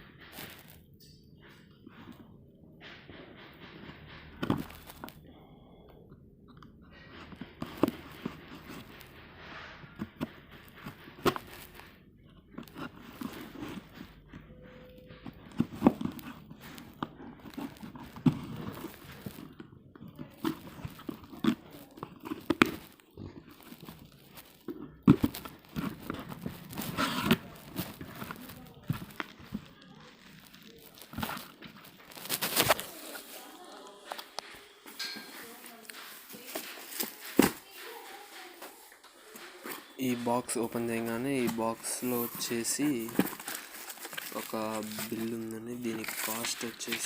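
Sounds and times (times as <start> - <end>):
packaging tearing and crinkling: 15.7 - 34.4, 40.0 - 47.0
box clicks and knocks: 40.7 - 47.0.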